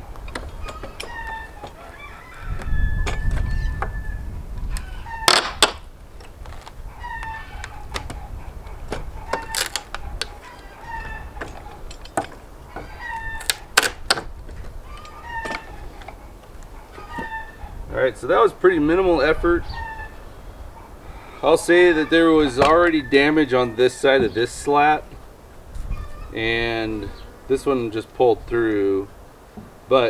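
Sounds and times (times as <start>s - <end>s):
chickens clucking: 0.0s - 5.9s, 6.5s - 13.8s, 14.6s - 28.0s
pallet boards cracking and creaking: 0.0s - 17.6s.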